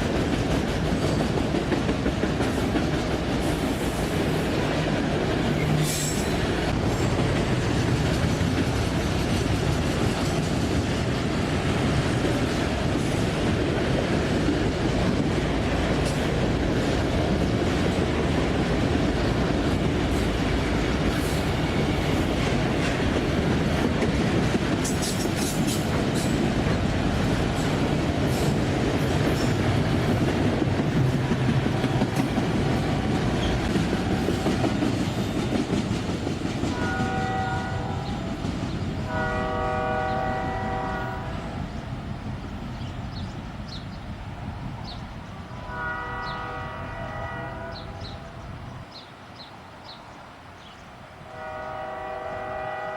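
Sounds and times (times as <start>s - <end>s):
clickety-clack over rail joints: 0.0s - 40.9s
train wheels rumbling on rails: 0.0s - 52.9s.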